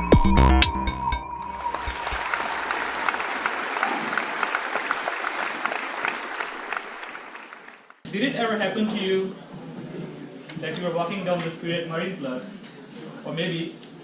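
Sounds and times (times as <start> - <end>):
electronic intro music: 0.0 - 2.2
audience clapping: 1.4 - 8.0.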